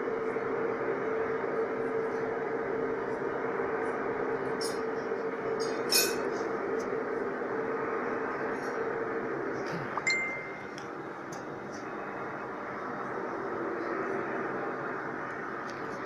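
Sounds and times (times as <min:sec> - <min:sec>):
loud droning hum: 0:00.0 - 0:16.0
light metallic tinkles: 0:10.1 - 0:10.8.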